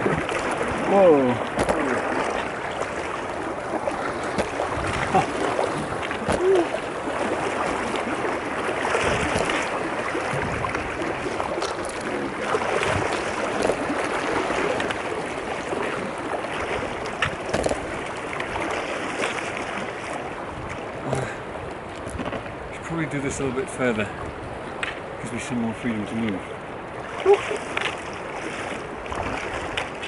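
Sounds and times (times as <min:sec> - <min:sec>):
small water splashes: 0:00.0 - 0:23.1, 0:23.7 - 0:30.0
river water rushing: 0:00.0 - 0:30.0.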